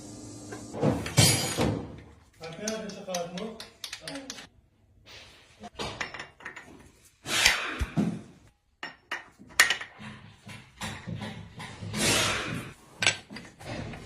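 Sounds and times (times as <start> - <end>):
metal tools knocking and clinking: 1.0 - 4.5, 5.8 - 6.9, 8.8 - 10.0, 13.0 - 14.0.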